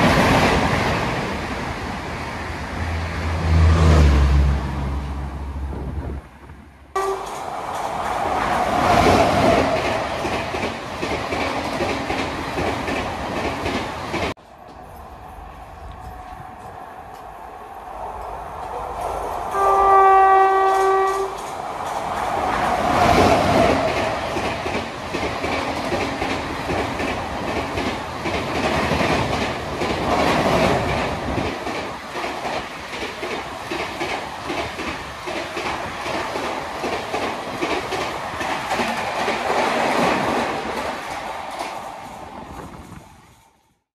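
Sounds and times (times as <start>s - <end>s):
train horn: 6.9s - 7.4s, 18.8s - 21.4s
wheels clacking over rail joints: 7.0s - 14.8s, 20.2s - 43.1s.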